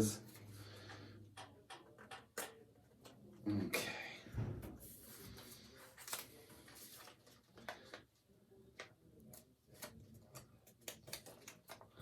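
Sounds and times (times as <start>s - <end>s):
light clicks and taps of paper: 8.8s - 12.0s.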